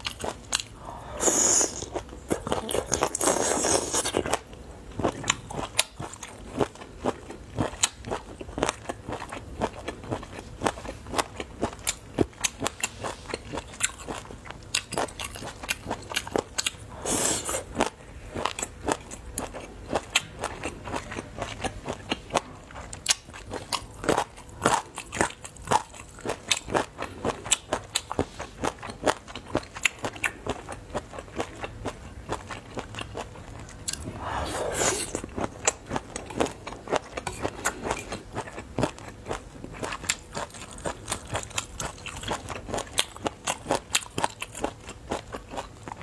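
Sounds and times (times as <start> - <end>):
hissing suck: 34.1 - 35.2.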